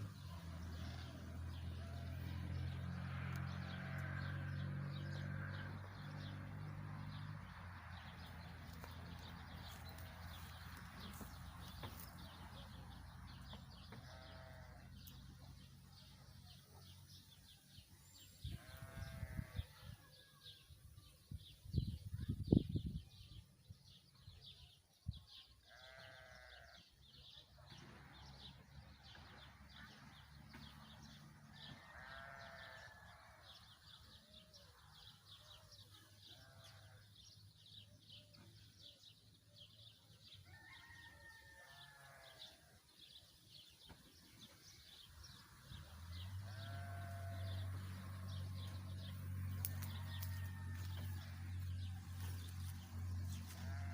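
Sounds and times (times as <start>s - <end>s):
livestock bleating: 3.4s - 5.8s, 13.9s - 15.1s, 18.4s - 20.0s, 25.7s - 26.8s, 31.6s - 33.4s, 36.3s - 37.0s, 41.6s - 42.7s, 46.4s - 48.2s, 49.6s - 53.9s.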